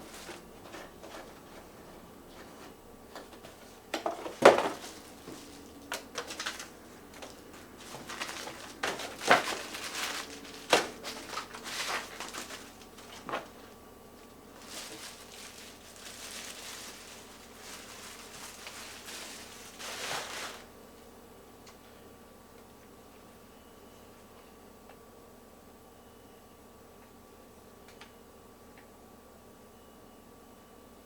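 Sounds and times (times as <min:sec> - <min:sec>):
packaging rustle: 0:00.0 - 0:01.4, 0:03.1 - 0:13.8, 0:14.5 - 0:20.7.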